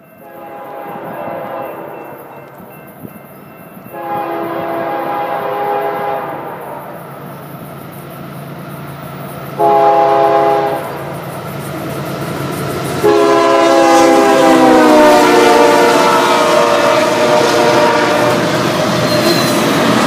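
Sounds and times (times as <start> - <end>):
train rumbling past: 0.0 - 20.0
locomotive air horn: 0.2 - 2.3, 3.9 - 6.9, 9.6 - 11.2, 13.0 - 19.6.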